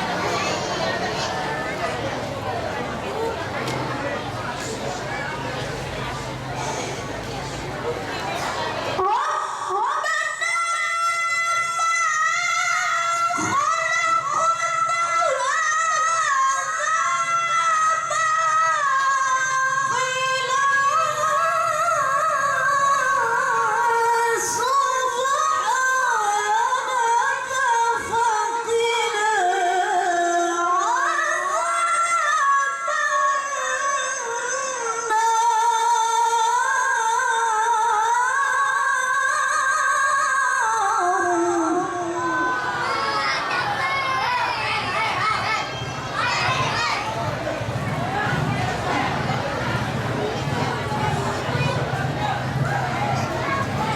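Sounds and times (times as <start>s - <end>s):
woman reciting melodically: 8.6s - 46.6s.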